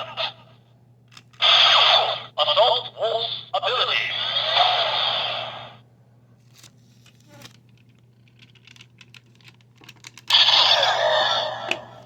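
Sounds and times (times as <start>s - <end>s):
toy electronic sound effect: 10.3s - 11.9s.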